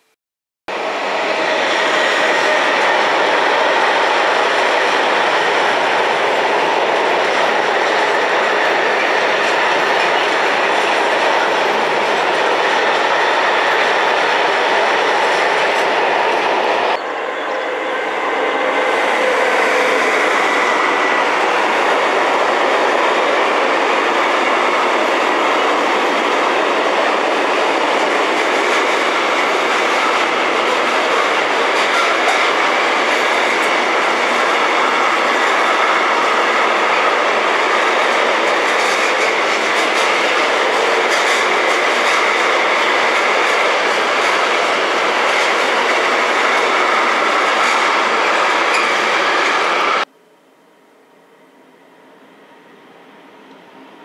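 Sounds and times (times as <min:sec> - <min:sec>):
freight train rumbling past: 0:00.7 - 0:50.1
wheels clattering over rails: 0:19.5 - 0:50.0.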